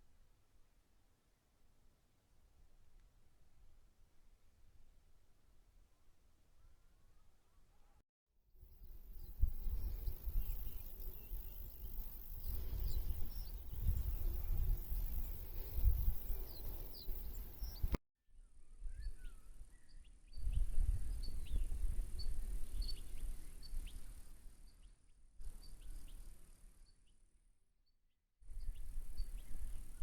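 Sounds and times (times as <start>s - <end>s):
small birds chirping: 8.8s - 18.0s
wind rumble on microphone: 8.9s - 18.0s, 18.6s - 24.5s, 28.5s - 30.0s
low whistled bird notes: 9.1s - 18.0s.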